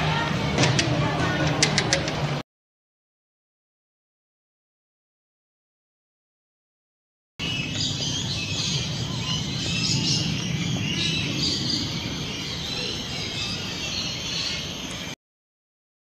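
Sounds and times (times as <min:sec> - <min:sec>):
low rumble: 0:07.4 - 0:13.7
birds chirping and calling: 0:07.4 - 0:15.2.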